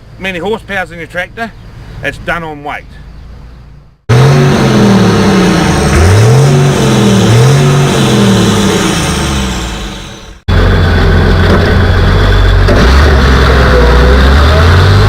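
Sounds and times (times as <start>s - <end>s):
tractor engine revving: 4.1s - 15.0s.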